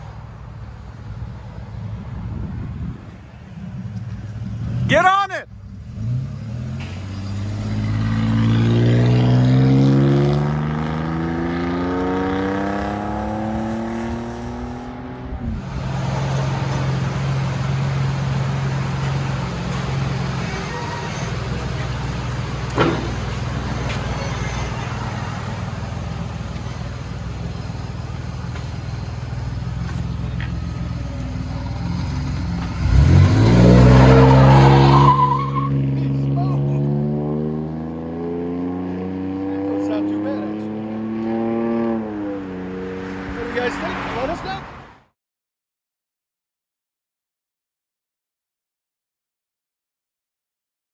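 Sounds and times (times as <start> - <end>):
engine accelerating hard: 5.6 - 44.4.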